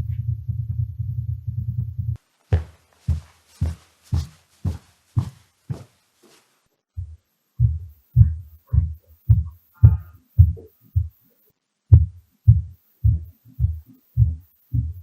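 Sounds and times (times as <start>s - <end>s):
dull footstep thuds through ceiling: 2.1s - 11.1s.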